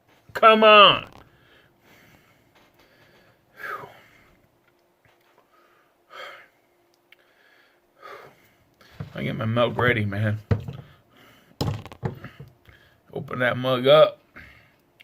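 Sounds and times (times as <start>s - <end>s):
man breathing sharply: 1.3s - 4.4s, 5.4s - 9.1s, 10.8s - 11.6s, 12.2s - 13.1s, 14.4s - 14.8s.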